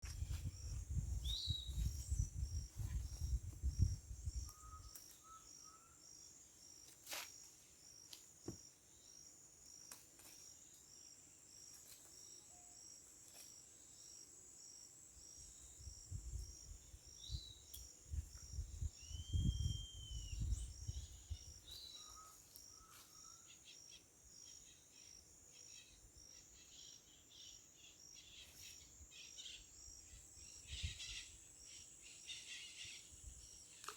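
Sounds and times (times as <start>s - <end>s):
high-pitched insect chorus: 0.1s - 33.8s.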